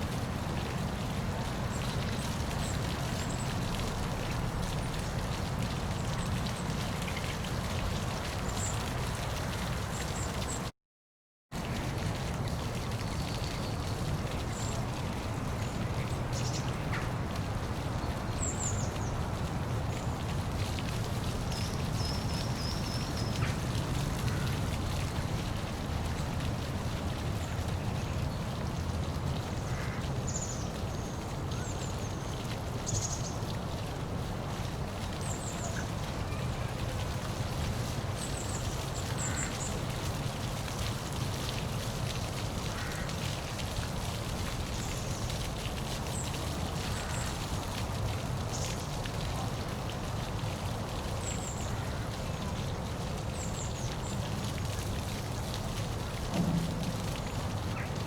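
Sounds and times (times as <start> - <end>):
waterfall rushing: 55.8 - 58.0.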